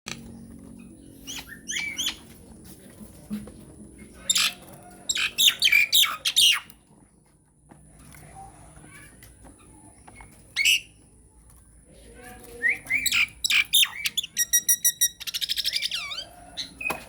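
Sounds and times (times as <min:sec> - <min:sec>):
bird harsh squawks and shrieks: 0:10.6 - 0:10.9.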